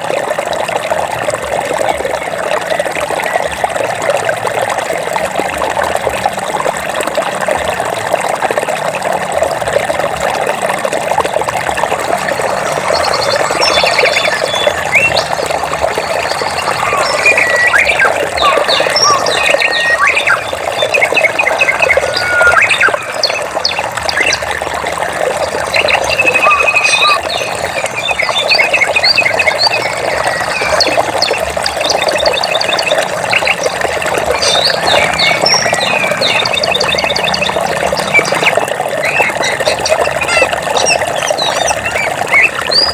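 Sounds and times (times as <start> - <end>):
stream water trickling: 0.0 - 42.9
birds chirping and trilling: 11.8 - 24.6, 25.2 - 42.9.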